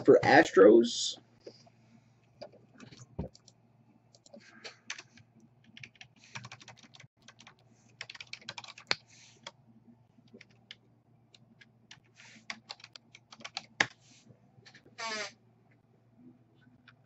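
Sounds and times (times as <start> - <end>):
typing on computer keyboard: 4.1 - 9.0, 11.6 - 14.0.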